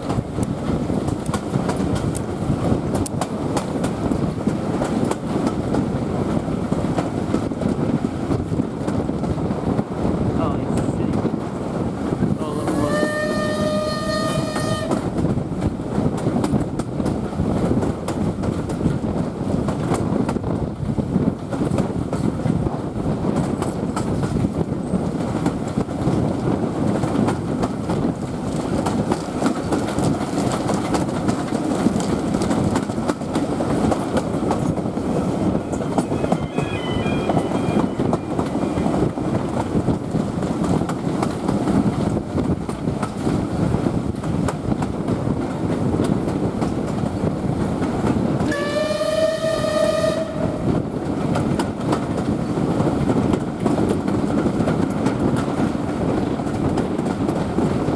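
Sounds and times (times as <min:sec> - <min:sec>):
wheel and rail-joint clicks: 0:00.0 - 0:05.8
train coaches rumbling: 0:00.0 - 0:57.9
steam whistle: 0:12.6 - 0:15.1, 0:35.7 - 0:39.0, 0:48.5 - 0:50.8.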